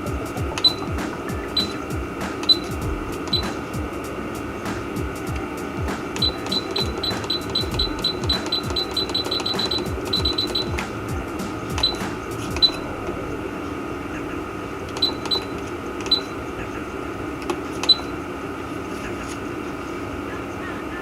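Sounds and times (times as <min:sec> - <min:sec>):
steady hum: 0:00.0 - 0:21.0
sharp ringing metallic clicks: 0:01.6 - 0:03.7, 0:06.1 - 0:13.2, 0:14.9 - 0:16.4.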